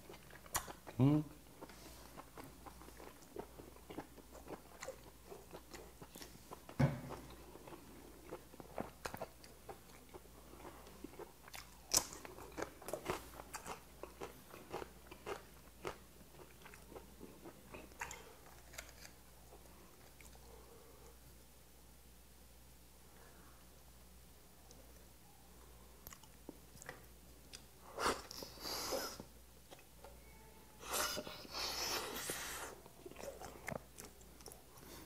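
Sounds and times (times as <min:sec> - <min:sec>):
chewing and crunching: 0:00.0 - 0:20.5, 0:32.3 - 0:35.0.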